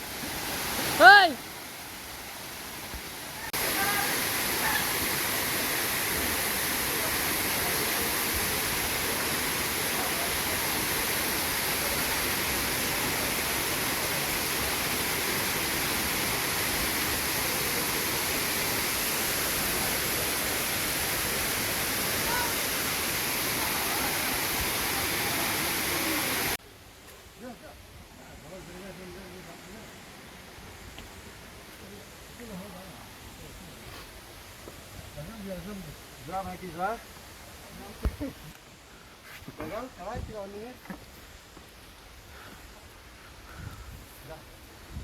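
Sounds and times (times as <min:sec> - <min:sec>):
waterfall rushing: 0:00.0 - 0:26.6.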